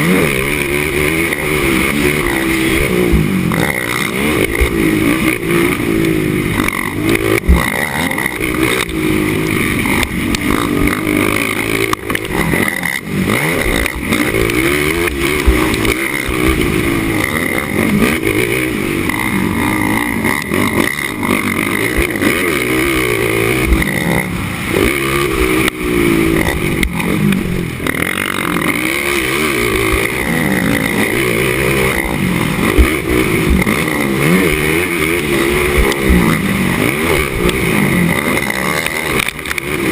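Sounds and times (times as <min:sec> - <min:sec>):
atv engine revving: 0:00.0 - 0:39.9
sharp thumps: 0:00.0 - 0:39.9.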